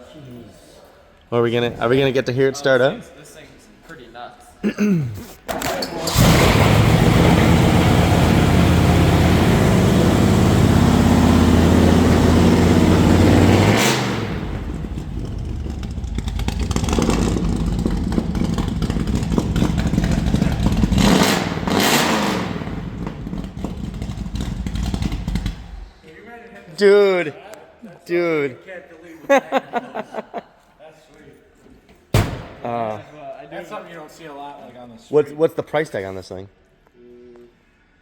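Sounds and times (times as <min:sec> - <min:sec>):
car engine starting and idling: 0:05.6 - 0:26.0
engine throttle blips: 0:06.1 - 0:26.0.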